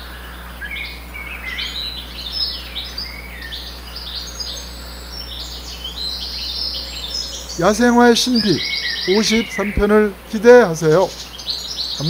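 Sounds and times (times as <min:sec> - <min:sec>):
birds chirping and singing: 0:00.0 - 0:12.0.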